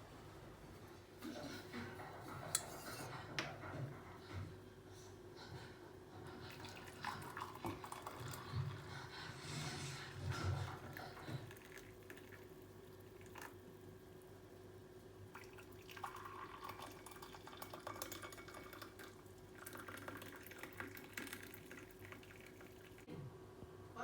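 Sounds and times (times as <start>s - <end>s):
dishes clinking: 1.3s - 3.6s.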